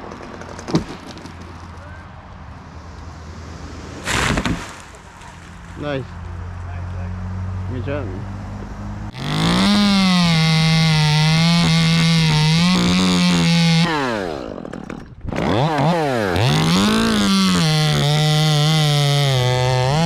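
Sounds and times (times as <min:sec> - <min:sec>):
chainsaw revving: 0:09.1 - 0:20.0.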